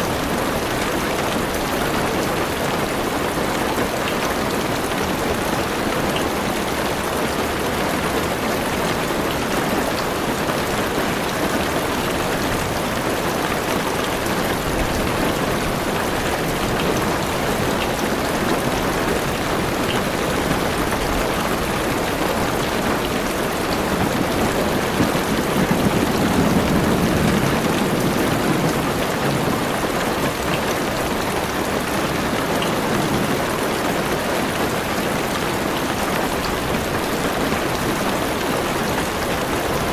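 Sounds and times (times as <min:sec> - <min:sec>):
heavy rain on car roof: 0:00.0 - 0:39.9
low rumble of thunder: 0:12.4 - 0:19.7, 0:23.6 - 0:30.6.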